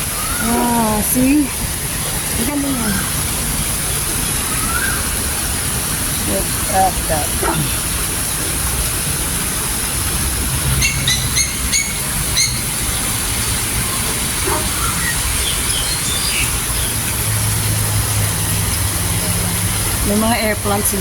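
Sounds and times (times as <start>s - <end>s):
birds chirping: 0.0s - 8.1s, 10.7s - 18.6s.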